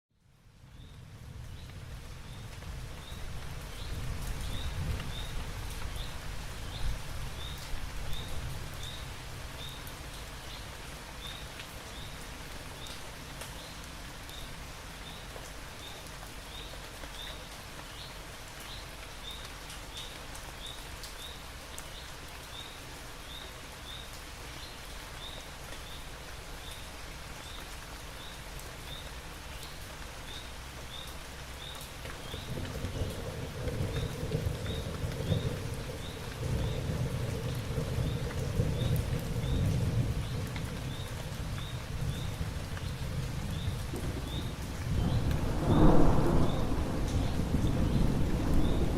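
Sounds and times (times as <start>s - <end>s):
steady rain: 0.1s - 48.9s
low rumble: 45.0s - 48.9s.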